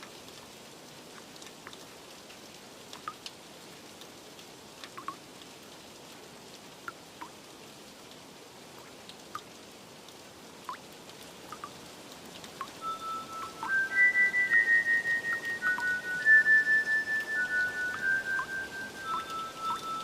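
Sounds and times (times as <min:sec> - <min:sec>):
steady rain hiss: 0:00.0 - 0:20.0
drops plinking: 0:12.6 - 0:20.0.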